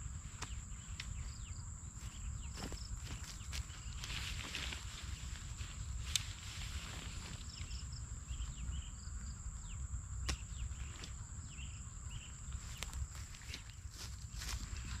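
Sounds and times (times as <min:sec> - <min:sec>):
bird chirps: 0:07.4 - 0:13.9.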